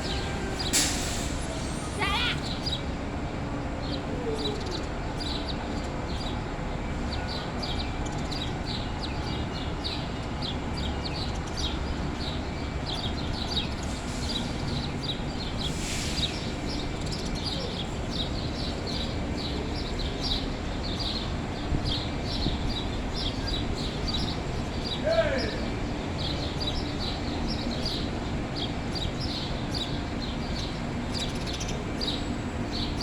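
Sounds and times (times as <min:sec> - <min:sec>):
brief hiss: 0:00.6 - 0:02.0, 0:15.7 - 0:16.4
small birds chirping: 0:03.8 - 0:33.0.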